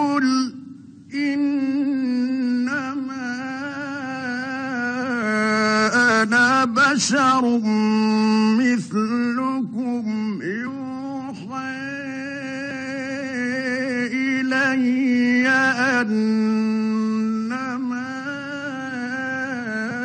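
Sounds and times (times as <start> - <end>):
man chanting melodically: 0.0 - 20.0.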